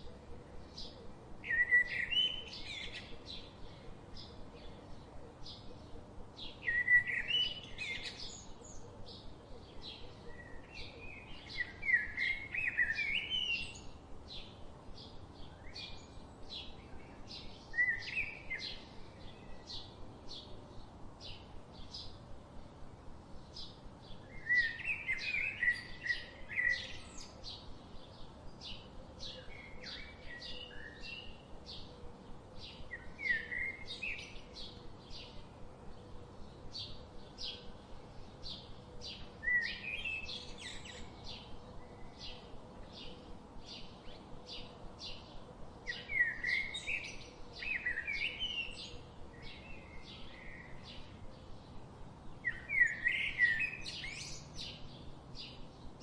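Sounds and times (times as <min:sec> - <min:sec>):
birds chirping: 0:23.3 - 0:56.0.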